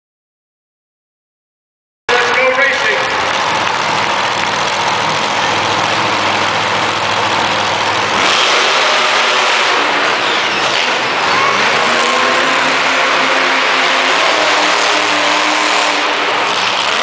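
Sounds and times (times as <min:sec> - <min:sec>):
arena crowd noise: 0:02.1 - 0:17.0
monster truck engine revving: 0:02.1 - 0:17.0.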